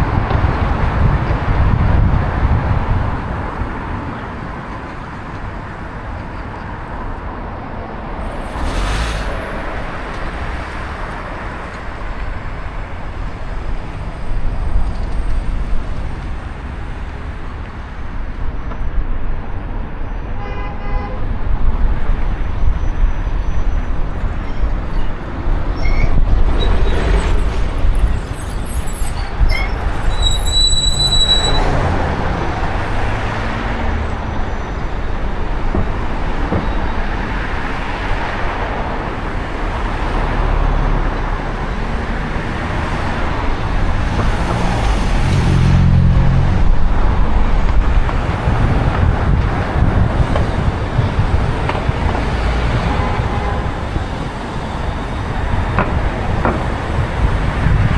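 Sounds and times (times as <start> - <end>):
heavy engines passing: 0.0 - 18.2, 23.7 - 57.9
high-pitched squeal: 24.9 - 35.4.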